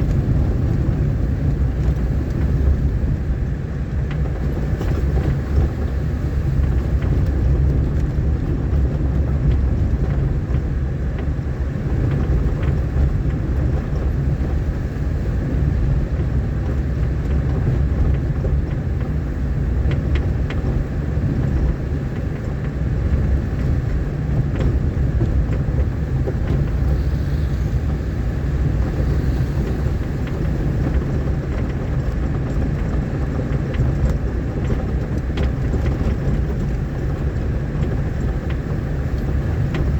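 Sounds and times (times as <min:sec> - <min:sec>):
vehicle engine and tyres rumbling: 0:00.0 - 0:39.9
small ticks and knocks: 0:29.0 - 0:39.9.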